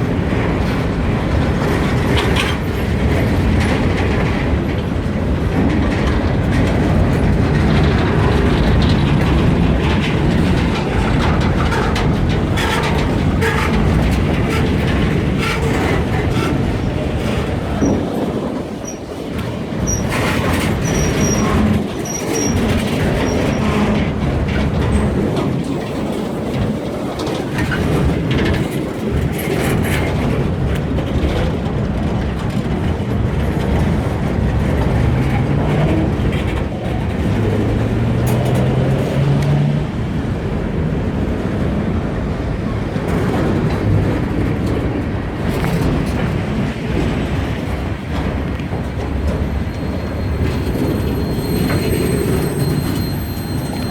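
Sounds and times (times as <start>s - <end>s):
train wheels rumbling on rail: 0.0s - 53.9s
high wheel squeals: 19.8s - 24.1s, 48.3s - 53.9s.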